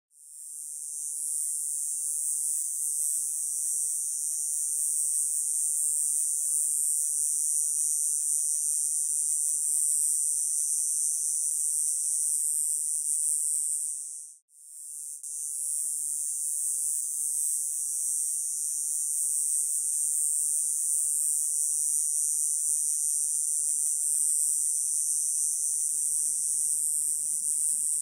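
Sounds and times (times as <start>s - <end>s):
cicada buzzing: 22.8s - 28.0s.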